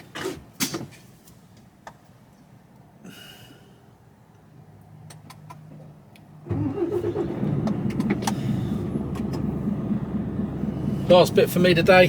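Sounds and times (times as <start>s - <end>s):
truck diesel engine starting: 6.5s - 12.0s.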